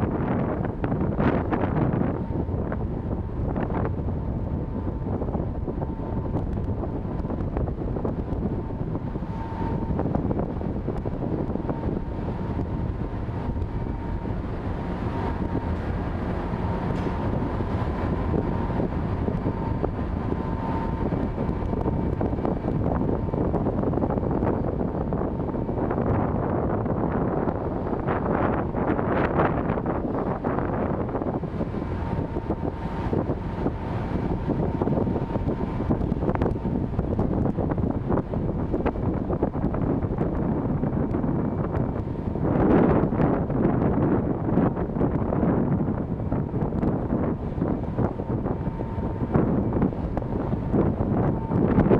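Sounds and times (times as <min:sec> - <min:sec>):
low rumble of a ship: 0:00.0 - 0:51.9
wind buffeting microphone: 0:00.0 - 0:51.9.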